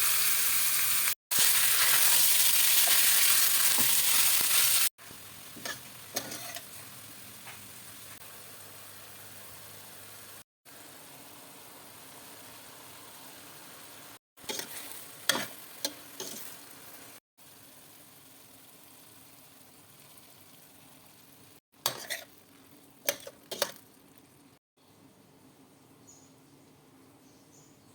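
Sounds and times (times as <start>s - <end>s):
chicken sizzling in a pan: 0.0s - 23.9s
utensil scraping and knocking pan: 21.9s - 22.3s.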